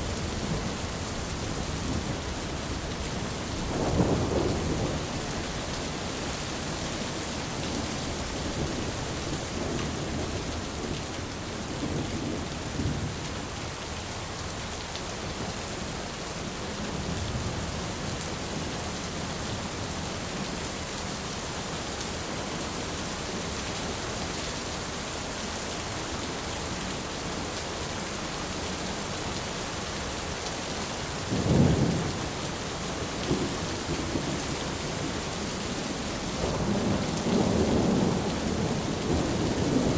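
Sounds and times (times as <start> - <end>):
rain hissing: 0.2 - 11.7
thunder rumbling: 3.5 - 5.4.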